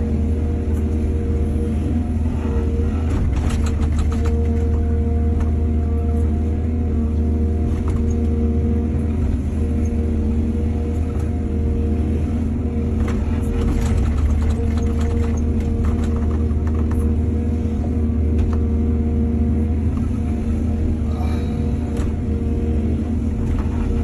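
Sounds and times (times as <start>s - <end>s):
excavator diesel engine rumbling: 0.0s - 24.0s
knocks and rattles: 3.1s - 4.8s, 13.5s - 17.1s.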